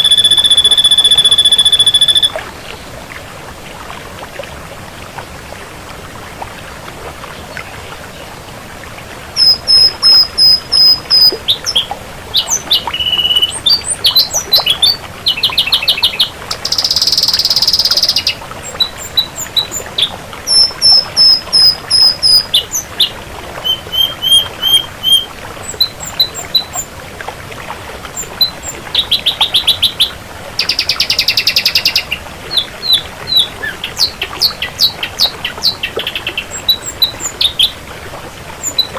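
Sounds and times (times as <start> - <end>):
bird singing varied song: 0.0 - 2.4, 9.4 - 26.9, 28.2 - 37.8, 38.6 - 38.9.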